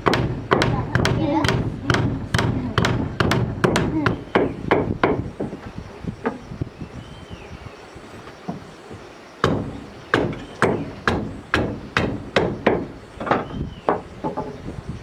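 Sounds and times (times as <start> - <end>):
hand tool striking wood: 0.0 - 5.6, 9.4 - 14.6.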